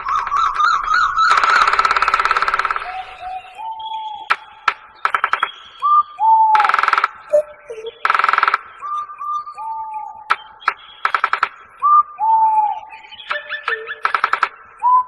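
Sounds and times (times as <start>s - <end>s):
harsh rattling bird calls: 0.0s - 11.8s, 12.9s - 14.8s
whistled bird notes: 0.0s - 15.0s
sharp clicks: 1.3s - 3.0s, 4.3s - 5.6s, 6.6s - 8.8s, 10.3s - 11.7s, 13.3s - 14.6s.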